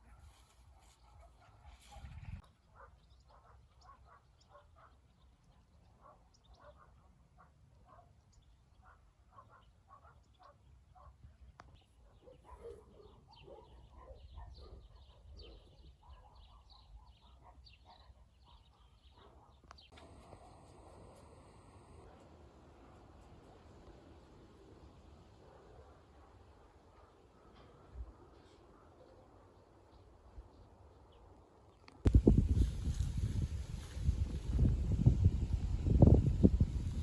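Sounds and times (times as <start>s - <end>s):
faint bird chatter: 0.3s - 20.6s.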